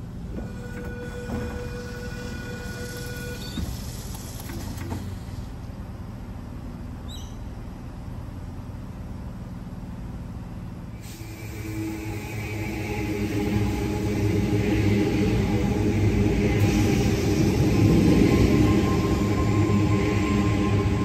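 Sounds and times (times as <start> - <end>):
electric train rumbling: 0.0 - 21.0
rising hum: 10.9 - 21.0.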